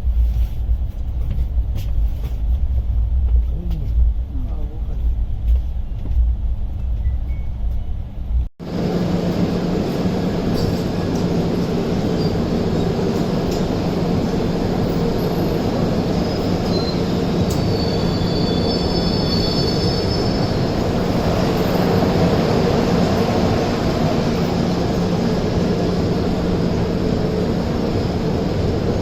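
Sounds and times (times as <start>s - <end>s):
train rumbling on rails: 0.0s - 29.0s
train wheel squeal: 6.8s - 8.0s, 10.5s - 13.8s, 14.8s - 22.3s.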